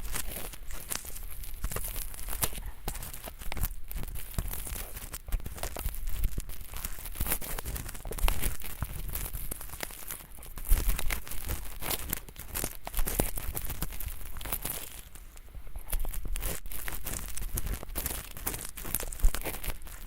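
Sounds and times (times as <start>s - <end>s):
ear pick scratching earwax: 0.0s - 20.0s.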